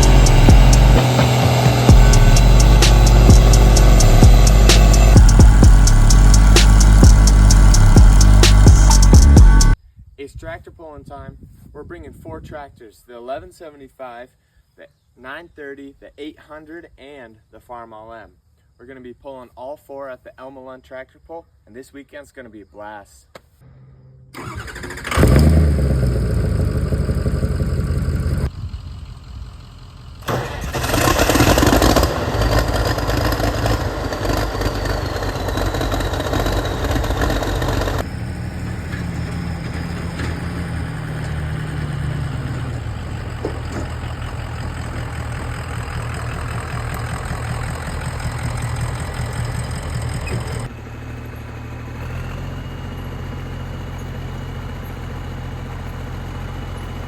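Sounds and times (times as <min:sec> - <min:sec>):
tractor engines starting and running: 0:00.0 - 0:09.8, 0:23.7 - 0:57.0.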